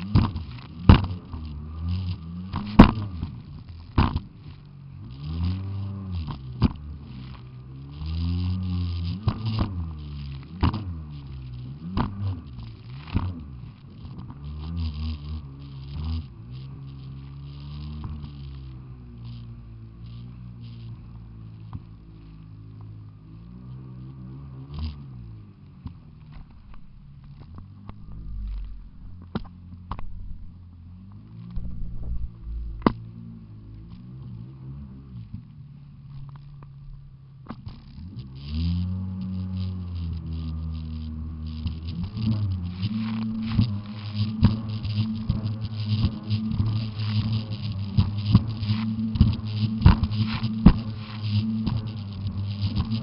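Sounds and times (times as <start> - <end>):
jet ski engine running: 0.0 - 53.0.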